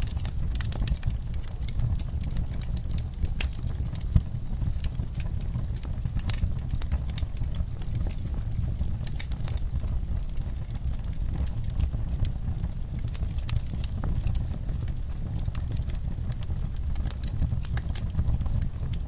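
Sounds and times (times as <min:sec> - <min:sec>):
fire pops and snaps: 0:00.0 - 0:19.0
wood fire crackling: 0:00.0 - 0:19.0.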